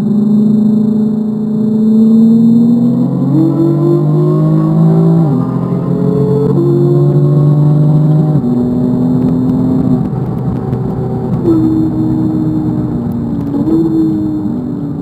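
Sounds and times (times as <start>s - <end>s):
car engine pulling hard: 0.0s - 15.0s
gear upshift: 8.0s - 15.0s.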